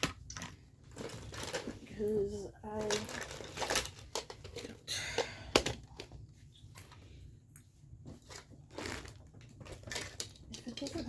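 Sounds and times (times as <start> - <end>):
plastic and paper crinkling: 0.0 - 4.8, 8.0 - 11.0.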